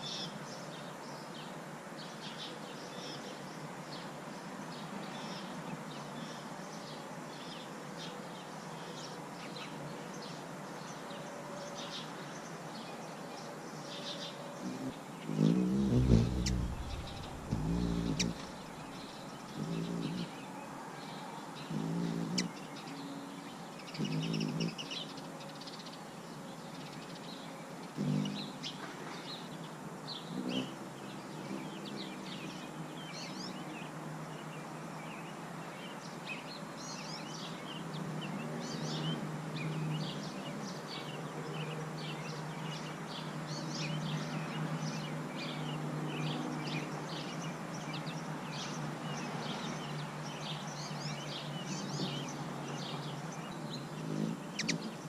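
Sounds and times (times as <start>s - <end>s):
birds chirping: 14.6s - 20.5s, 37.3s - 55.0s
low hum: 15.7s - 19.1s.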